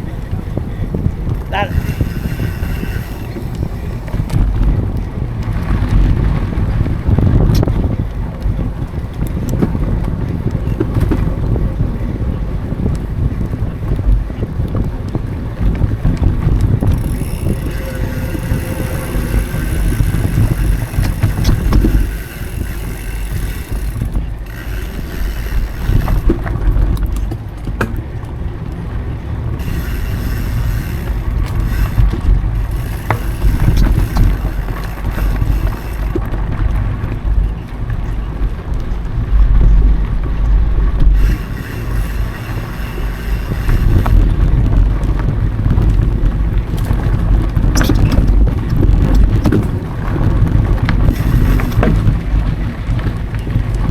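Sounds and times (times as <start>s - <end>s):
bike knocks and rattles: 0.0s - 38.8s, 41.0s - 53.9s
tyre and trail rumble: 0.0s - 53.9s
wind buffeting microphone: 0.0s - 53.9s
high even buzz: 1.4s - 4.3s, 16.8s - 26.4s, 29.6s - 36.2s, 41.2s - 44.5s.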